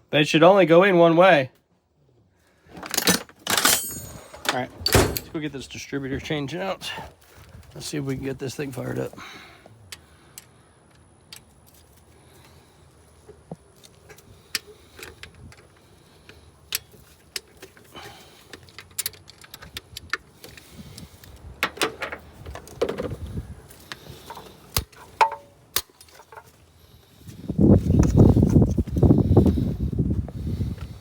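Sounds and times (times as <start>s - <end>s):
metallic tool clinks: 3.0s - 5.3s
rustling and scraping: 11.5s - 29.8s.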